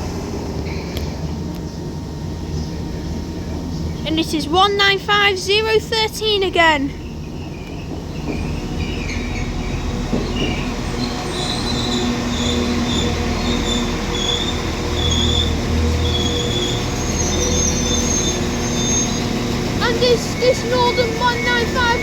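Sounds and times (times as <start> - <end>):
train engine rumbling: 0.0 - 22.0
high-pitched wheel squeal: 7.3 - 22.0.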